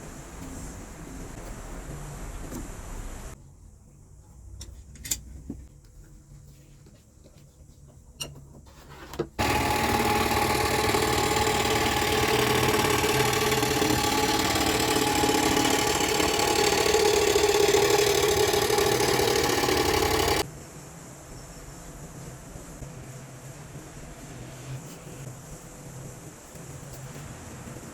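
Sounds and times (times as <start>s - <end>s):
woodworking power tool running: 9.4s - 20.4s.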